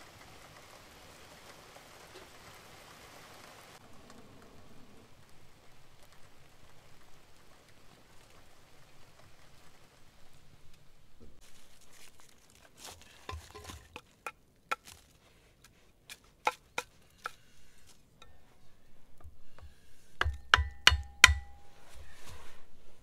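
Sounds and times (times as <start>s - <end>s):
loud knocks splitting firewood: 19.2s - 21.7s.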